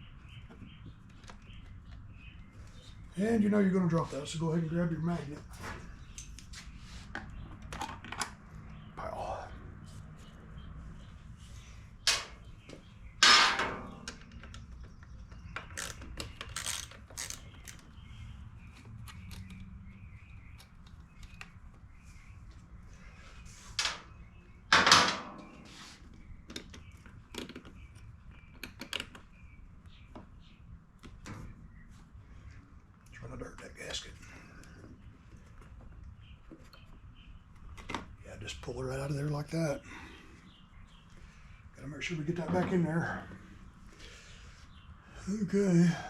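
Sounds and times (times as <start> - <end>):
loud metal clanks: 13.2 - 14.2, 24.7 - 25.5.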